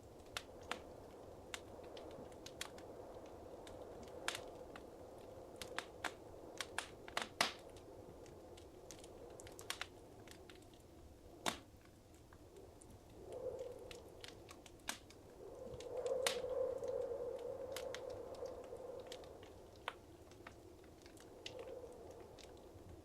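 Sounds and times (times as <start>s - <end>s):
low rush of flame: 0.0s - 23.0s
wood fire crackling and popping: 0.0s - 23.0s.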